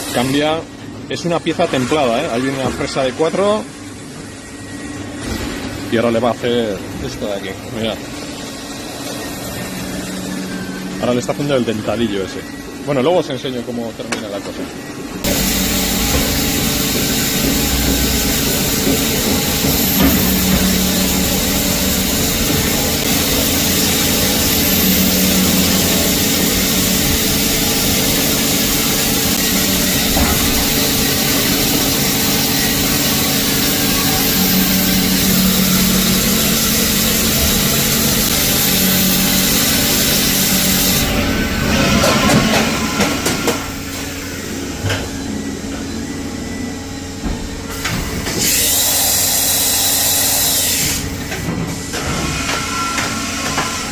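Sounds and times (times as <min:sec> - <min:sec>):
milling machine cutting steel: 0:15.2 - 0:44.6, 0:47.8 - 0:53.9.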